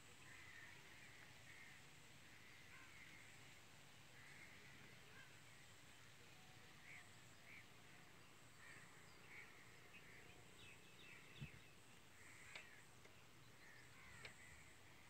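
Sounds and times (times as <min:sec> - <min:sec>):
birds calling and chirping: 0:04.2 - 0:15.0.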